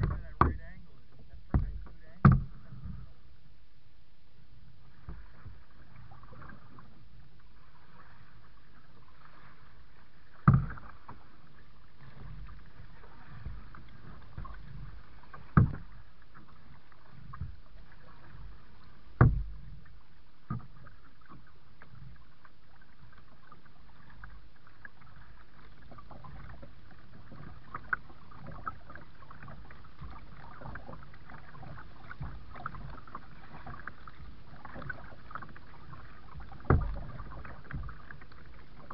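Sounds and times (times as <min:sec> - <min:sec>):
sharp knocks on kayak: 0:00.0 - 0:00.8, 0:01.5 - 0:02.6, 0:10.4 - 0:10.8, 0:15.4 - 0:15.9, 0:19.2 - 0:19.6, 0:36.6 - 0:38.0
paddle water sounds: 0:00.0 - 0:38.9.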